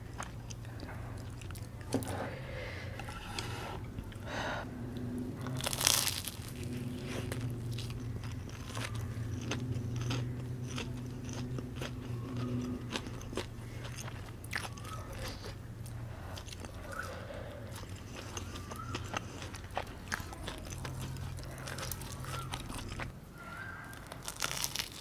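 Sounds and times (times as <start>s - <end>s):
steady low hum: 0.0s - 25.0s
wet chewing clicks: 0.0s - 25.0s
crunchy bite: 5.4s - 15.6s, 16.4s - 25.0s.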